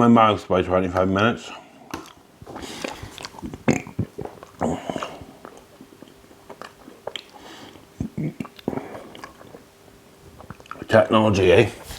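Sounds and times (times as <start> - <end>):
man chewing food: 1.7 - 11.9
mouth clicks and smacks: 1.9 - 10.9.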